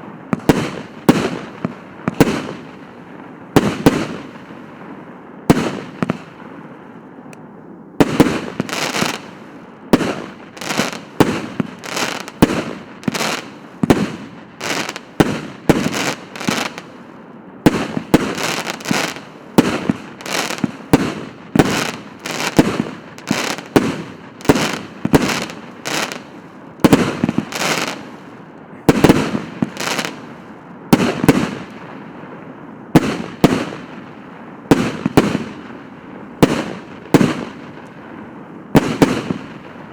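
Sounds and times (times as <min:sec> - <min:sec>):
firework cake firing shots: 0:08.0 - 0:09.3, 0:38.8 - 0:39.6.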